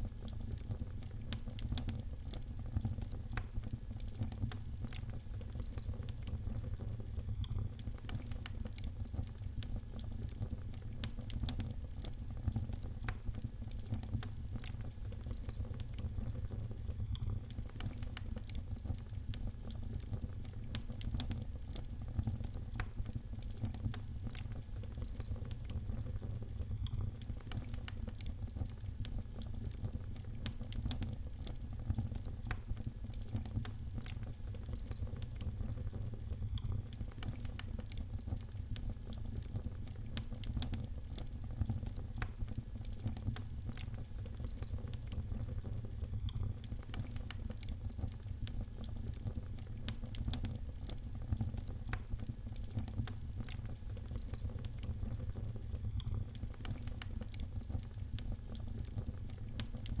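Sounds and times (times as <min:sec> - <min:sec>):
fire crackling and popping: 0:00.0 - 1:00.0.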